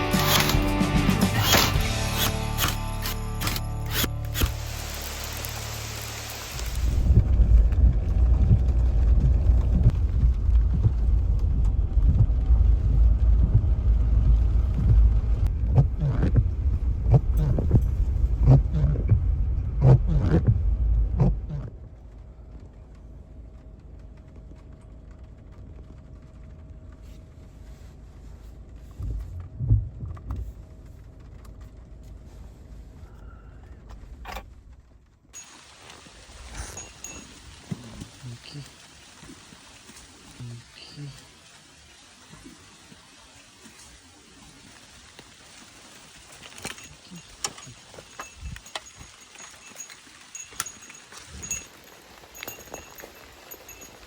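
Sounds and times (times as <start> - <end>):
vehicle rumble: 0.0 - 54.0
knocks and rattles: 46.4 - 54.0.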